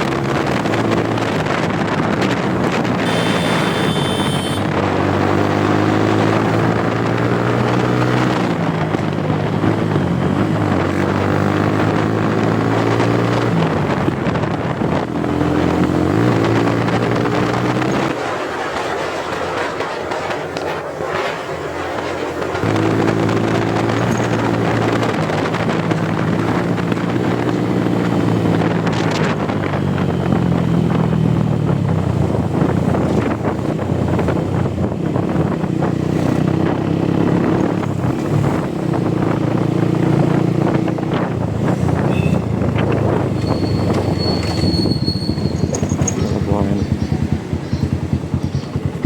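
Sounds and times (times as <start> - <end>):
wind buffeting microphone: 0.0 - 3.4, 4.6 - 49.0
motorcycle engine running: 0.0 - 17.7, 22.6 - 49.0.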